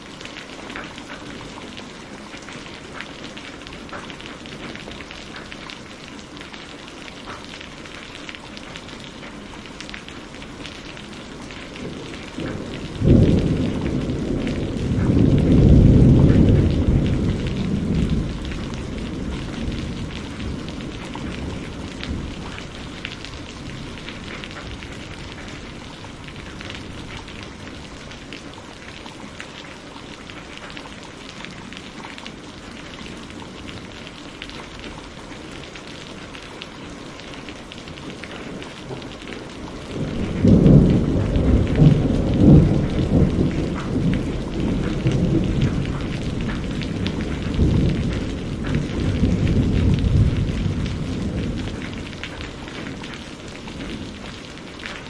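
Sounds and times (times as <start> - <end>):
heavy rain: 0.0 - 55.0
rolling thunder: 11.8 - 28.2, 38.7 - 53.1.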